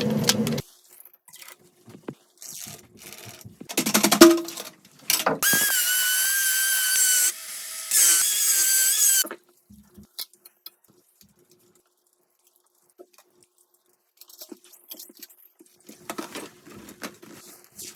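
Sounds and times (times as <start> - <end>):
power drill whining: 5.4 - 9.2.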